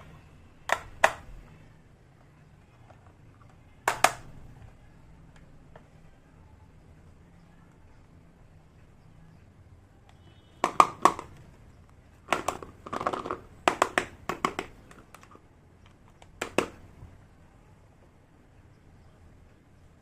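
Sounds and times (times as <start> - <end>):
plastic toy pieces clacking: 12.3 - 15.4.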